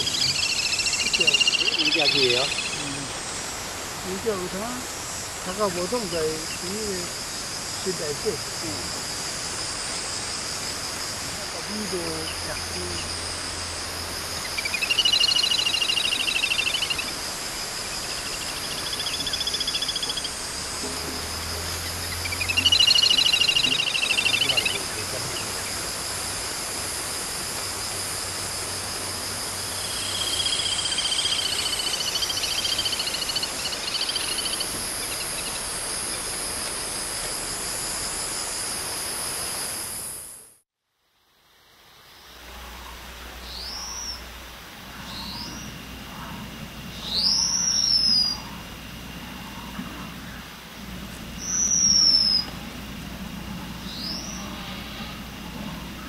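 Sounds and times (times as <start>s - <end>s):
bird singing trills: 0.0s - 3.2s, 14.3s - 25.8s, 29.8s - 36.2s, 45.0s - 45.8s, 46.9s - 48.6s, 51.3s - 52.5s, 53.8s - 54.7s
high insect drone: 0.0s - 56.0s.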